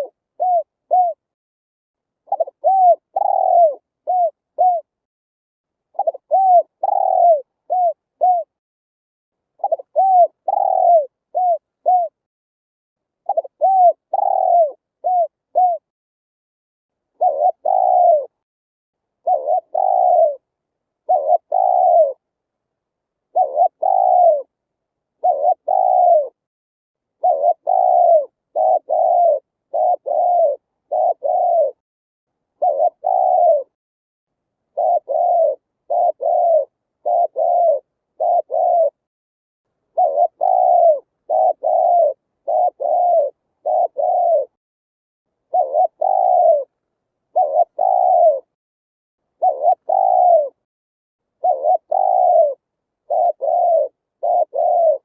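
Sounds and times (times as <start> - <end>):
dove cooing: 0.0 - 1.3, 2.3 - 5.0, 5.9 - 8.6, 9.6 - 12.2, 13.2 - 15.9, 17.2 - 18.4, 19.2 - 22.2, 23.3 - 24.5, 25.2 - 26.4, 27.2 - 31.8, 32.6 - 33.8, 34.7 - 39.1, 39.9 - 44.6, 45.4 - 48.6, 49.4 - 50.6, 51.4 - 55.0.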